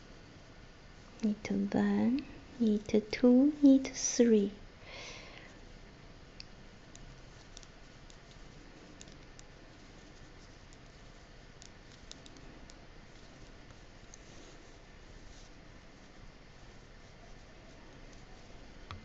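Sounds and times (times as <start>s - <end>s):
steady low hiss: 0.0s - 19.0s
knitting needles clicking: 6.4s - 9.5s, 10.5s - 13.3s.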